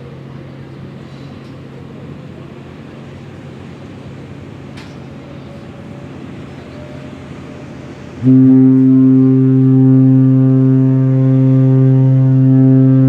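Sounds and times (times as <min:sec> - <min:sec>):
ship horn blast: 0:06.6 - 0:13.0.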